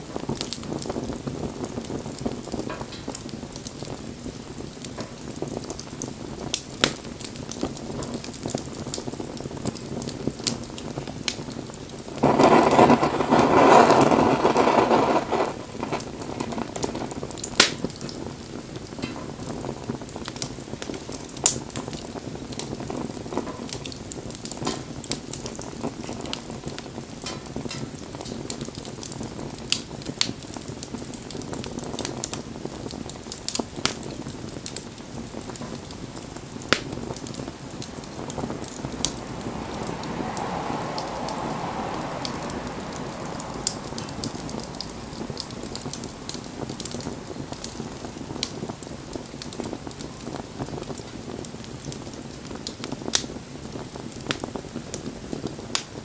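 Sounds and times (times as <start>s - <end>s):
bonfire crackling: 0.0s - 56.0s
burning wood popping: 0.0s - 56.0s
rushing hiss: 12.2s - 16.6s, 36.8s - 48.3s.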